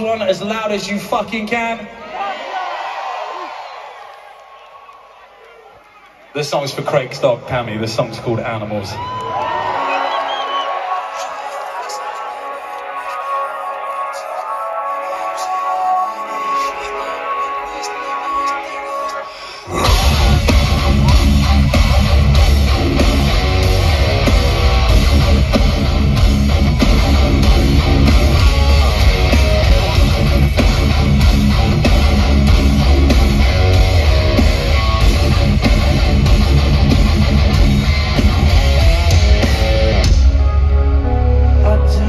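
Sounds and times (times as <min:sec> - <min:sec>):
metalcore band playing: 0:19.7 - 0:42.0.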